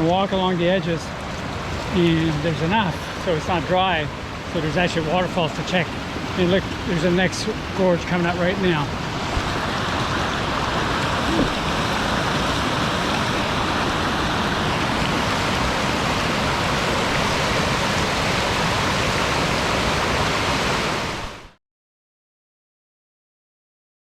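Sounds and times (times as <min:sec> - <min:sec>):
river rushing through rocky gorge: 0:00.3 - 0:21.4.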